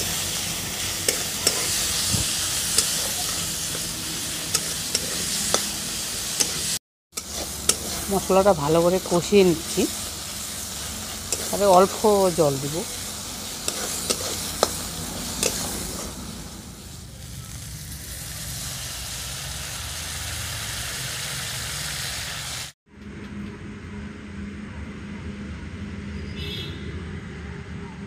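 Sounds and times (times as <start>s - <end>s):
masala sizzling in hot oil: 0.0s - 22.8s
metal spatula scraping pan: 1.0s - 2.0s, 2.6s - 8.3s, 13.6s - 16.2s.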